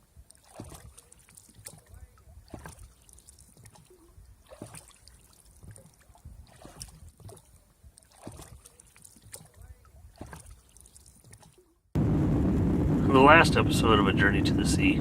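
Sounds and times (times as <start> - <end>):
water lapping against boat hull: 0.0 - 11.9
low rumble: 12.0 - 15.0.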